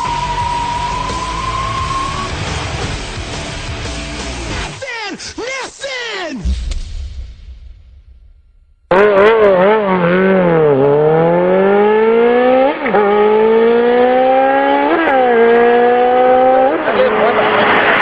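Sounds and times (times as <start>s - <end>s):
engine revving and accelerating: 8.9s - 18.0s.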